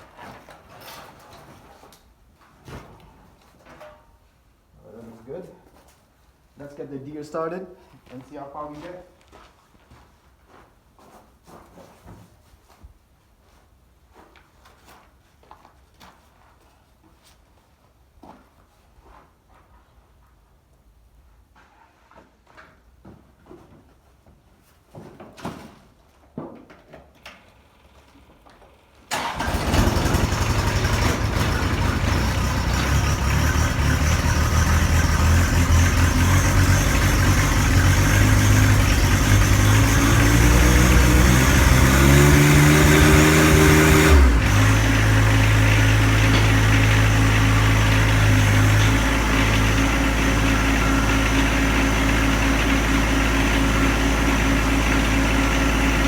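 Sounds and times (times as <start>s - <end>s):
diesel tractor engine revving: 29.1s - 56.0s.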